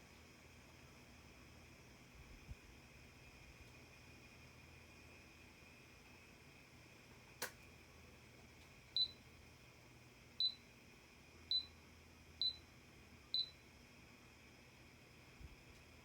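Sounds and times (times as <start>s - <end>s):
air conditioner short high beeps: 8.9s - 9.3s, 10.4s - 10.7s, 11.5s - 11.8s, 12.4s - 13.6s.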